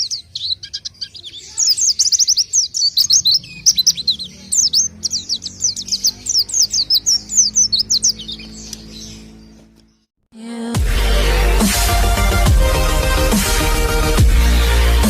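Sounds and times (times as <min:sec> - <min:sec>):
songbird singing fast chattering song: 0:00.0 - 0:10.1.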